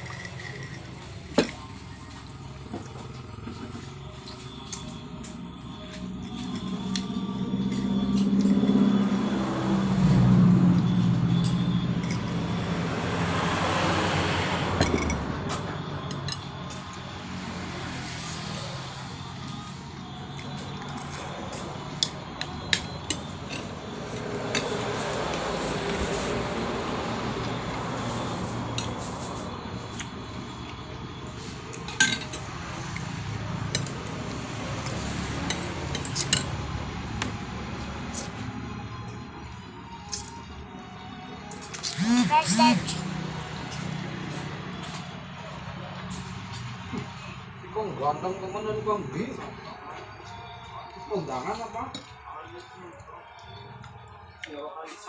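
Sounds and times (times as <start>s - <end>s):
vehicle engine passing by: 5.7s - 50.0s
cutlery clinking against a plate: 14.8s - 15.3s, 16.1s - 16.9s, 22.0s - 26.2s, 31.8s - 33.1s, 33.7s - 36.6s.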